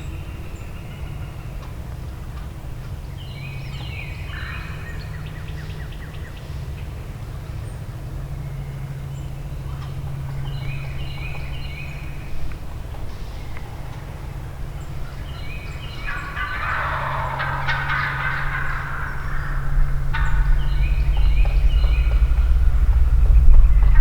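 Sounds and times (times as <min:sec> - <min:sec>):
steady low hum: 0:00.0 - 0:24.0
wild turkey gobbling: 0:04.2 - 0:07.0, 0:09.7 - 0:24.0.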